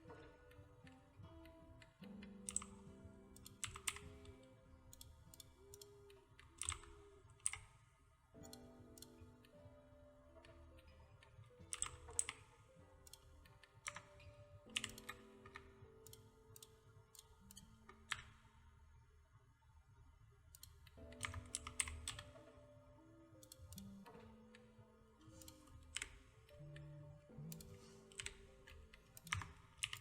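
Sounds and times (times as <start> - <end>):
soft background music: 0.0 - 30.0
keyboard typing: 0.9 - 7.8, 8.4 - 9.6, 11.6 - 18.4, 20.5 - 22.7, 23.4 - 30.0
mouse clicks: 2.0 - 7.8, 8.4 - 9.6, 11.7 - 18.4, 23.4 - 24.2, 25.3 - 30.0.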